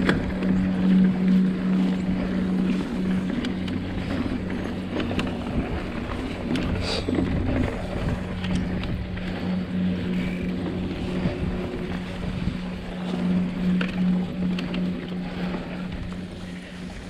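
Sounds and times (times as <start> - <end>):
bike tyre and drivetrain noise: 0.0 - 17.0
steady buzzing hum: 0.0 - 17.0
wind on microphone: 0.0 - 17.0.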